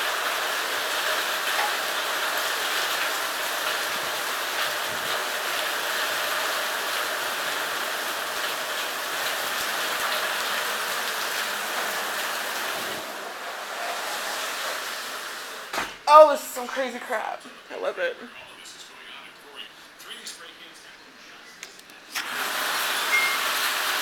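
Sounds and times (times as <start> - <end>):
heavy rain pouring: 0.0 - 17.1, 22.2 - 24.0.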